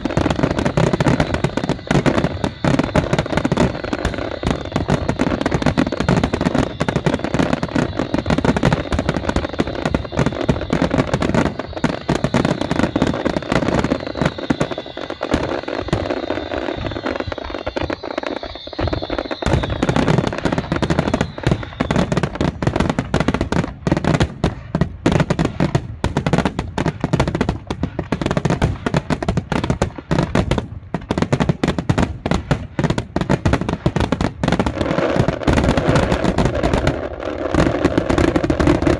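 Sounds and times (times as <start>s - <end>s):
high falling whistle: 0.0s - 24.2s
fireworks bangs and crackling: 0.0s - 38.9s.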